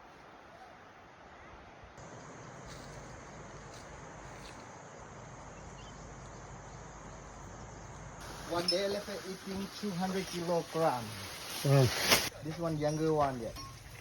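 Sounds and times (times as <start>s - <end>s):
high insect drone: 2.0s - 10.3s.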